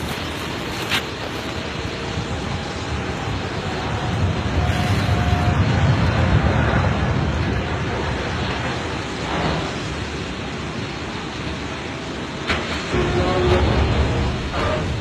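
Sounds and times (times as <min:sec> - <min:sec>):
airplane rumble: 0:00.0 - 0:15.0
wind buffeting microphone: 0:00.0 - 0:15.0.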